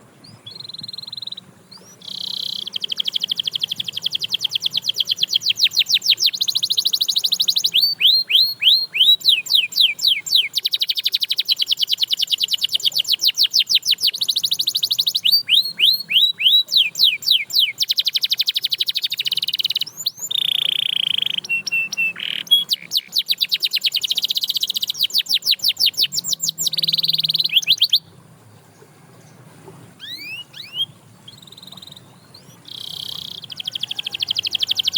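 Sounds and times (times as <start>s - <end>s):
canary singing trills: 0.0s - 28.1s, 30.0s - 34.9s.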